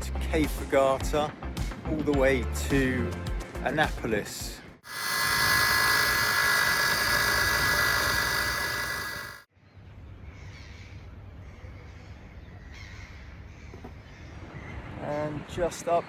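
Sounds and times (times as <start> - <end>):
background hiss with gusts: 4.9 - 9.4
electric winch motor whining: 4.9 - 9.4.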